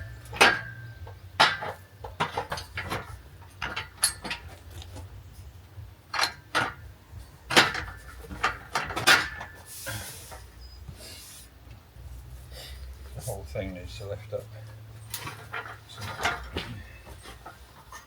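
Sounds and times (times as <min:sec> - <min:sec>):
metal poles clanking: 0:00.0 - 0:10.5, 0:14.5 - 0:18.0.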